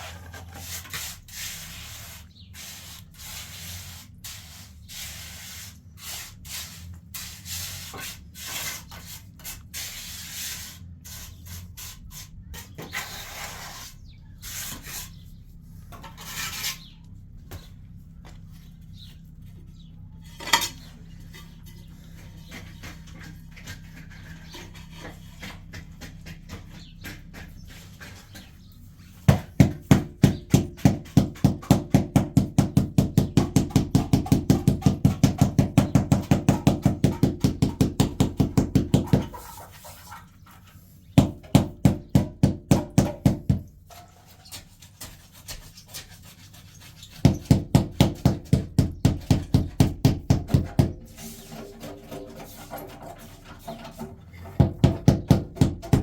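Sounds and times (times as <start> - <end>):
rapid knocking strokes: 21.3 - 40.2, 44.6 - 56.0.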